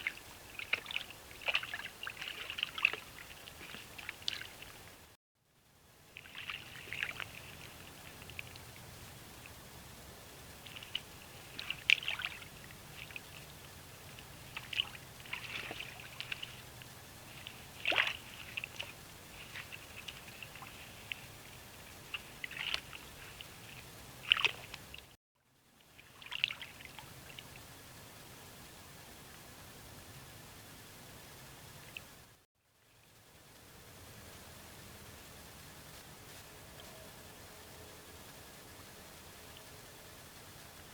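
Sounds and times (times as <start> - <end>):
water sloshing and splashing: 0.0 - 5.1, 6.1 - 9.7, 10.3 - 25.2, 25.8 - 27.7
steady low hum: 0.0 - 40.9.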